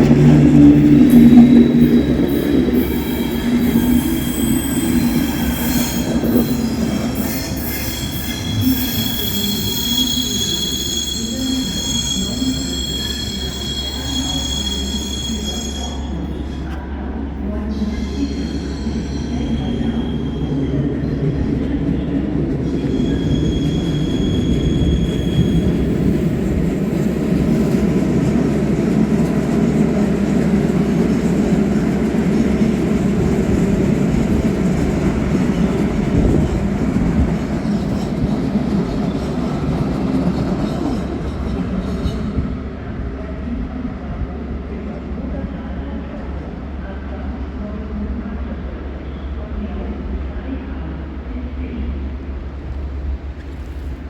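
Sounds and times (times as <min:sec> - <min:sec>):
passenger train rumbling: 0:00.0 - 0:54.0
high-pitched wheel squeals: 0:00.9 - 0:16.2, 0:22.6 - 0:26.2.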